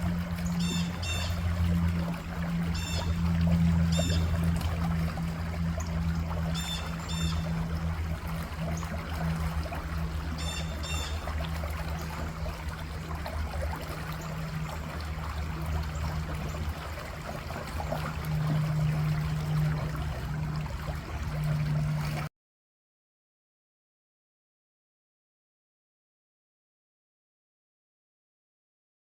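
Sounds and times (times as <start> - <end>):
low hum: 0.0 - 22.3
rushing trickling water: 0.0 - 22.3.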